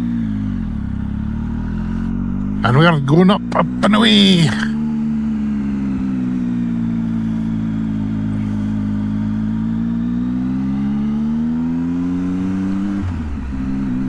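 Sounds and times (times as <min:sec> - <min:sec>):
motorcycle engine revving: 0:00.0 - 0:02.6.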